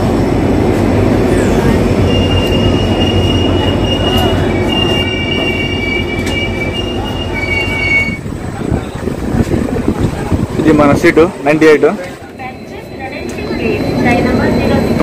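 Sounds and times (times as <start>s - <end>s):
train coaches rumbling past: 0.0s - 15.0s
high-pitched wheel squeal: 1.3s - 8.3s, 12.4s - 15.0s.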